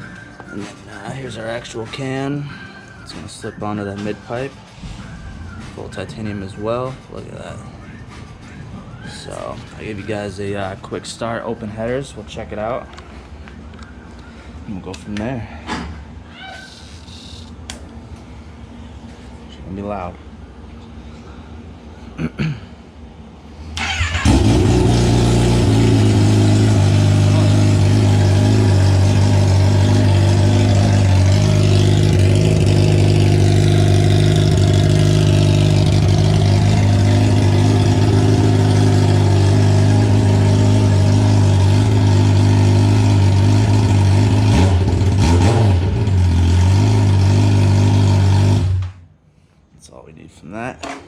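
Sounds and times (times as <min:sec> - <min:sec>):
motorcycle engine cranking: 0:23.8 - 0:39.5
loud motorcycle engine idling: 0:23.8 - 0:45.2.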